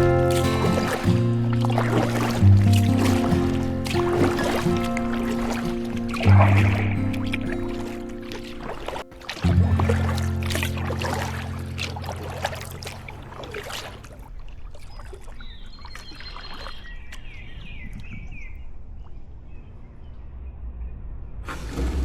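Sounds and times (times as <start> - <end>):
paddle splashing in water: 0.0 - 17.0.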